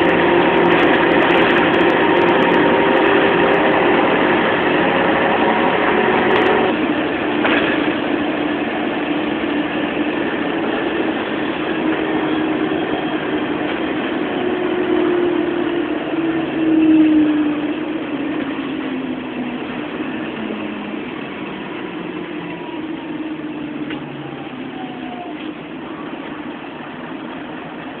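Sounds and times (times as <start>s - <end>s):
bus diesel engine changing gear: 0.0s - 28.0s.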